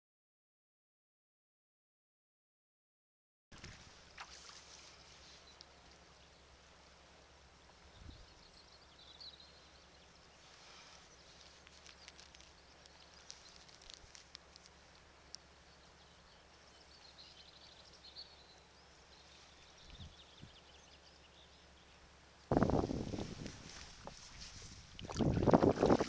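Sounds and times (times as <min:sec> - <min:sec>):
water lapping and dripping: 0:03.6 - 0:06.1, 0:23.4 - 0:26.0
steady low hum: 0:03.6 - 0:26.0
small high ticks: 0:04.2 - 0:06.1, 0:11.0 - 0:15.5.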